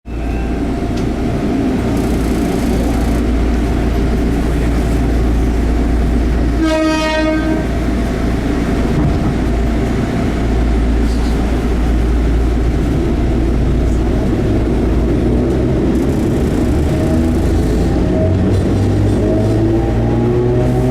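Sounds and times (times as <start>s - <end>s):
train motors and wheels rumbling: 0.1s - 20.9s
train horn: 6.5s - 7.8s.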